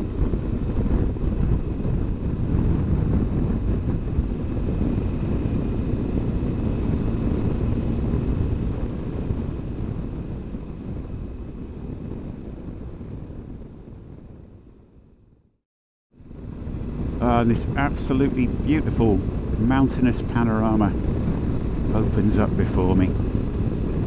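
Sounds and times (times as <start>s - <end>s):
motorcycle engine droning: 0.0s - 15.4s
wind over microphone: 0.0s - 15.4s, 16.1s - 24.0s.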